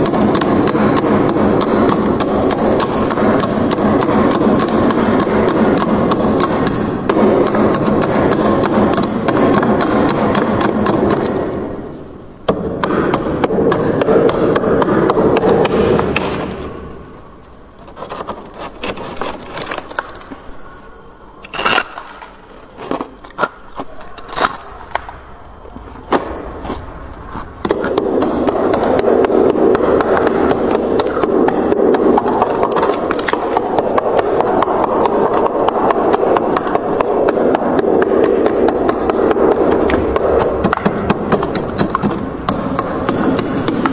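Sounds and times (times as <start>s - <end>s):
freezer frost crunching and crackling: 21.5s - 27.9s.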